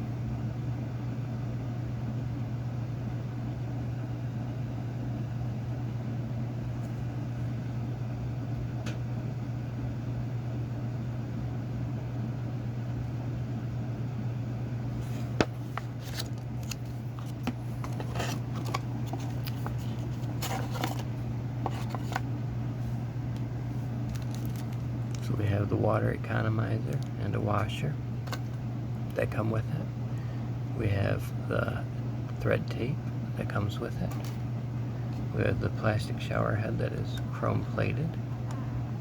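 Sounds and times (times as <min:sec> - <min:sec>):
steady low hum: 0:00.0 - 0:39.0
plastic packaging rustling and clicking: 0:15.4 - 0:22.3, 0:24.0 - 0:25.2.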